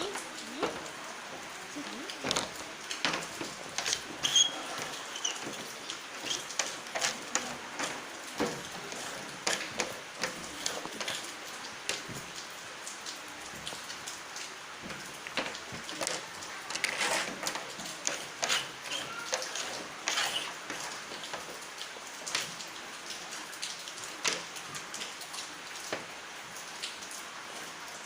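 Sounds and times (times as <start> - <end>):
small clicks and taps: 23.6 - 25.1.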